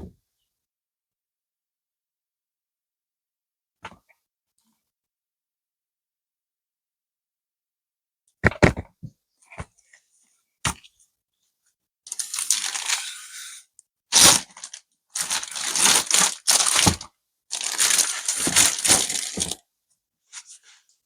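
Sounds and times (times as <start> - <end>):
hands crackling and rustling: 12.1 - 13.0, 14.1 - 19.6.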